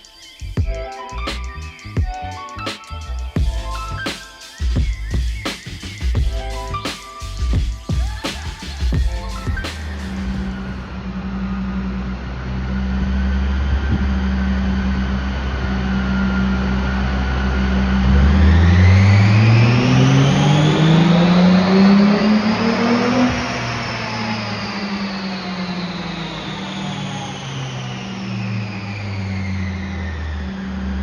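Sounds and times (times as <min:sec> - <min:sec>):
car engine revving: 0:16.6 - 0:31.0.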